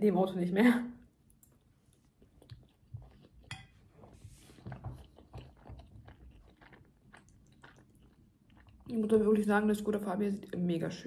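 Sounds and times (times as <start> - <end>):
faint chewing: 1.2 - 9.4.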